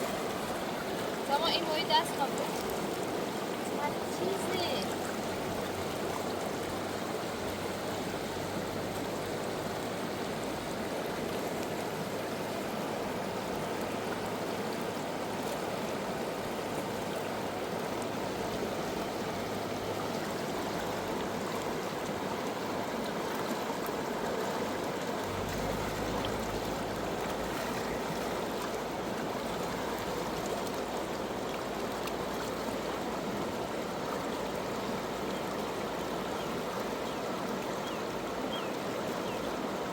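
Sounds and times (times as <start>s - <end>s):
river water rushing: 0.0s - 39.9s
low hum: 25.2s - 28.9s.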